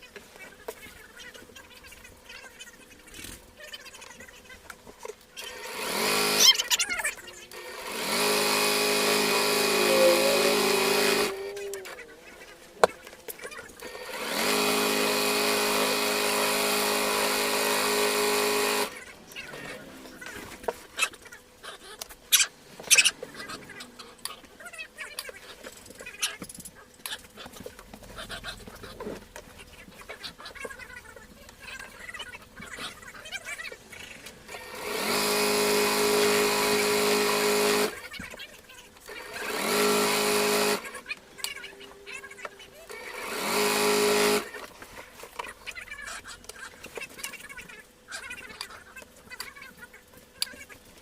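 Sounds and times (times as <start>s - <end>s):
sewing machine motor whine: 5.4s - 12.1s, 13.7s - 19.0s, 34.4s - 38.1s, 39.0s - 41.0s, 42.7s - 44.8s.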